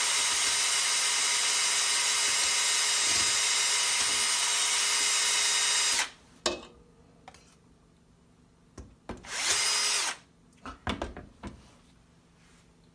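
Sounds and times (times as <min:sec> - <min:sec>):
electric drill whisking: 0:00.0 - 0:06.1, 0:09.3 - 0:10.2.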